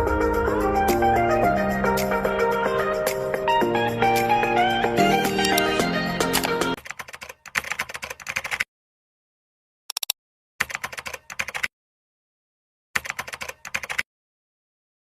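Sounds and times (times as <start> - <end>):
rapid keyboard-like clicking: 6.3 - 8.7, 9.9 - 11.7, 13.0 - 14.1.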